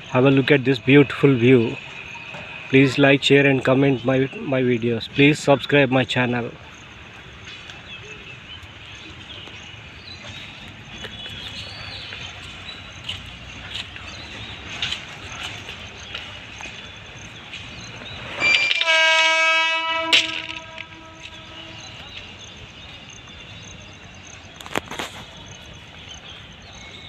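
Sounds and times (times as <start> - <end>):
locomotive horn blast: 18.3 - 22.4.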